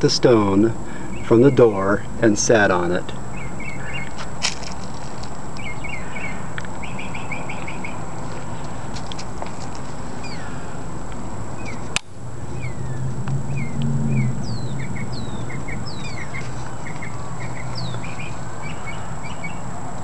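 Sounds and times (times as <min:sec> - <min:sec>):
outdoor hiss: 0:00.0 - 0:12.5
small birds chirping: 0:00.0 - 0:19.7
low hum: 0:00.0 - 0:20.0.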